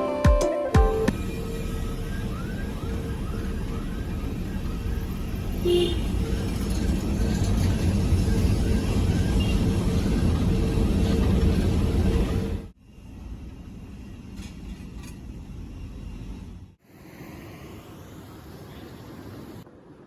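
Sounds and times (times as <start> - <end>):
constant hum: 1.0 - 16.8.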